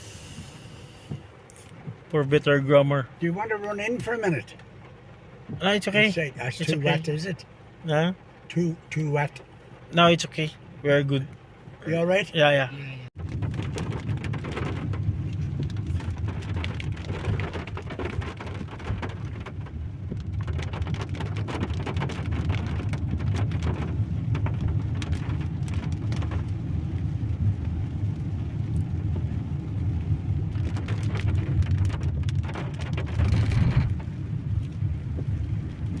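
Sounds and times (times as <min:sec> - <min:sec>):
low rain rumble: 0:00.0 - 0:36.0
raindrops ticking: 0:13.2 - 0:36.0.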